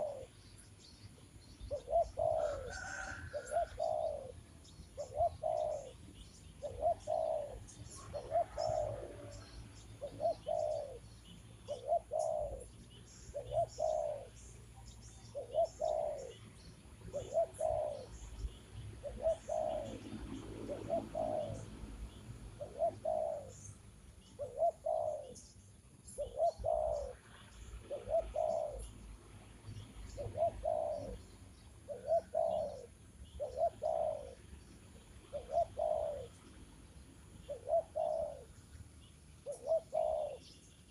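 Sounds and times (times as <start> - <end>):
dove cooing: 0.0 - 0.4, 1.7 - 16.4, 17.0 - 18.3, 19.0 - 23.7, 24.3 - 25.5, 26.1 - 28.9, 30.1 - 34.5, 35.2 - 36.5, 37.4 - 38.6, 39.4 - 40.9
small birds chirping: 0.0 - 40.9.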